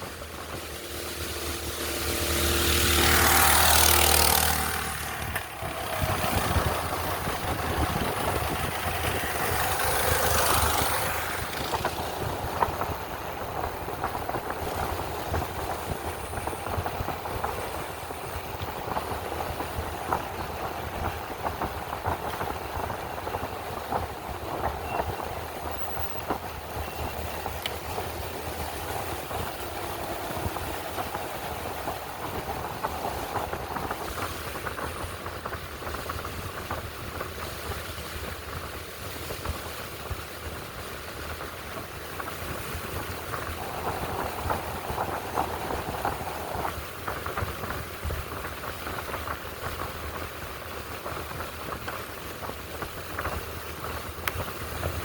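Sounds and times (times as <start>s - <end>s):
wind rush: 0.0s - 55.0s
small gasoline engine running: 0.5s - 12.7s.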